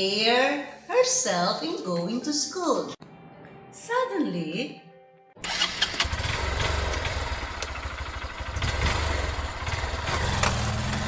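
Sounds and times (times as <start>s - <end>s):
motorcycle engine running: 5.4s - 11.0s.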